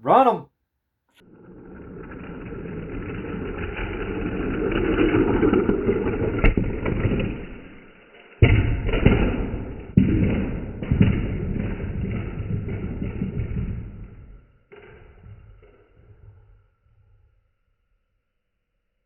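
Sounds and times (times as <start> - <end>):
toy cars rolling on plastic track: 1.2 - 17.2
toy cars clattering and crashing: 1.4 - 14.0.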